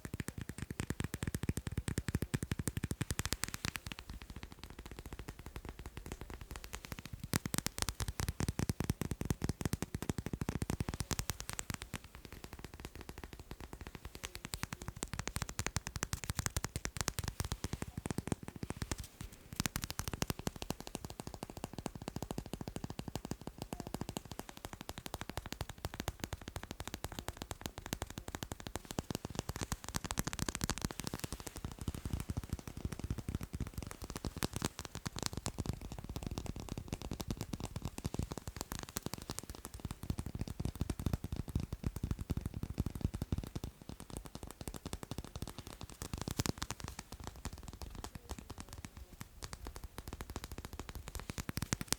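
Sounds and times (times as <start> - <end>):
rapid light tapping: 0.0 - 51.9.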